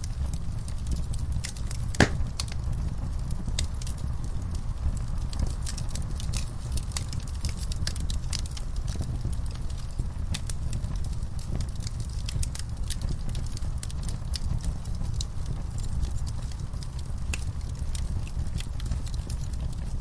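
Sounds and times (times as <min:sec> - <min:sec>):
fire flames rumbling: 0:00.0 - 0:20.0
logs crackling and snapping: 0:00.0 - 0:20.0
loud pop from fire: 0:01.5 - 0:02.6.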